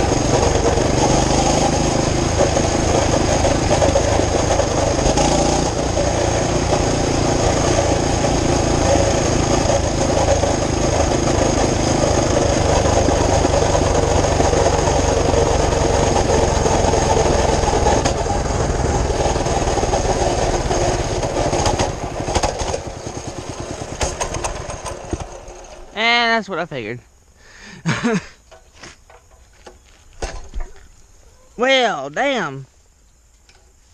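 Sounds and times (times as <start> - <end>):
small engine running and faltering: 0.0 - 26.4.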